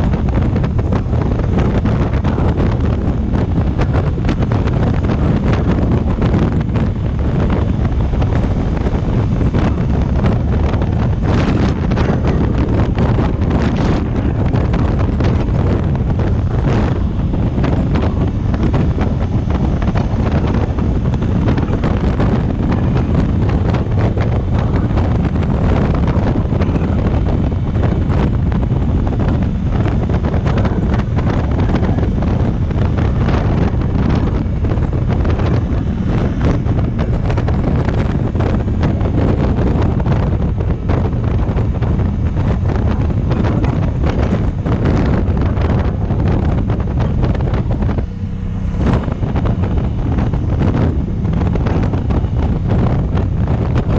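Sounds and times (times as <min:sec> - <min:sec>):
wind buffeting microphone: 0:00.0 - 0:53.9.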